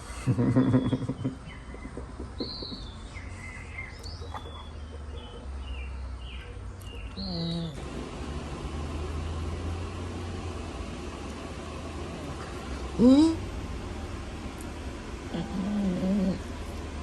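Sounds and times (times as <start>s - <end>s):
steady low hum: 0.0s - 17.0s
small birds chirping: 0.2s - 7.9s.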